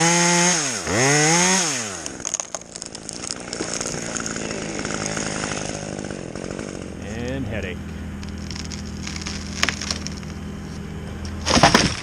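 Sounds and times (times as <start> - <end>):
chainsaw at full throttle: 0.0 - 7.2.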